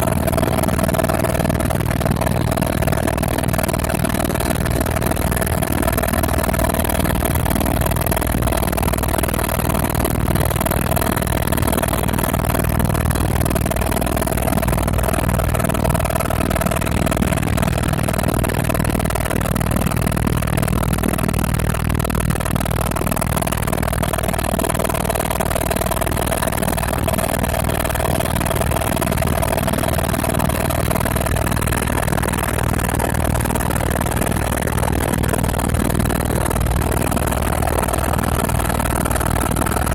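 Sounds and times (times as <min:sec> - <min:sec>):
helicopter engine and rotor noise: 0:00.0 - 0:39.9.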